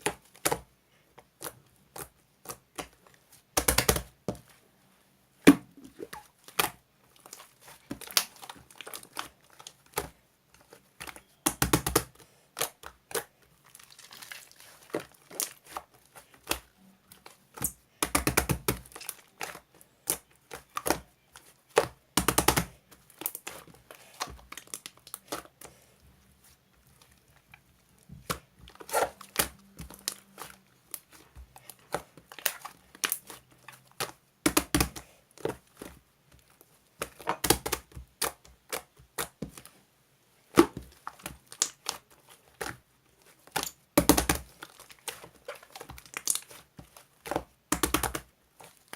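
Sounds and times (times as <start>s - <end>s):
crinkling and tearing: 12.6s - 17.4s, 40.8s - 48.9s.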